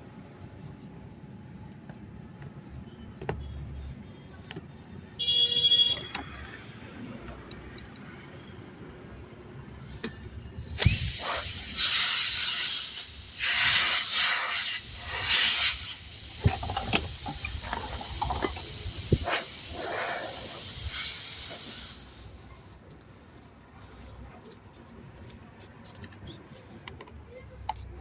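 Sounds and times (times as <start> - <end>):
pressurised air hissing: 9.9 - 23.7
sharp clicks and knocks: 16.4 - 19.3.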